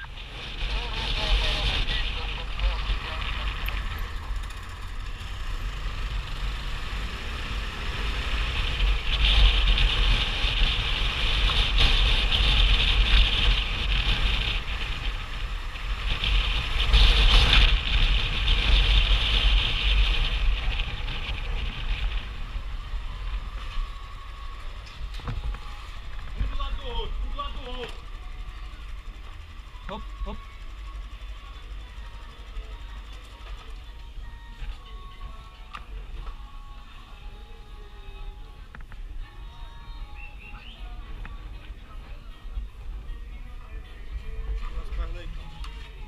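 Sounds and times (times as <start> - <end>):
motorcycle engine: 0.0 - 33.6
wind buffeting microphone: 8.4 - 27.2.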